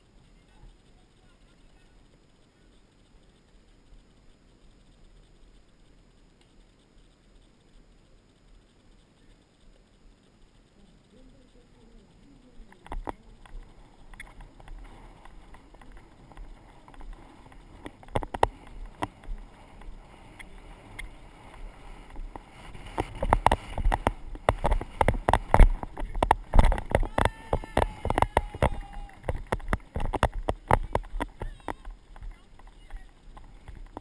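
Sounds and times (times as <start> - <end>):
wind rumbling on microphone: 0.0 - 34.0
horse hoofbeats: 12.9 - 34.0.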